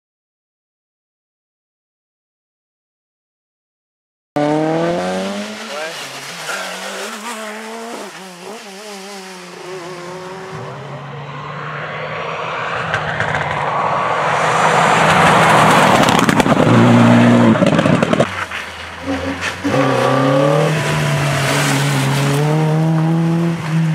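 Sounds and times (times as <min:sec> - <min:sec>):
tyre noise rushing: 0:04.4 - 0:10.9
rally car engine revving: 0:04.4 - 0:23.9.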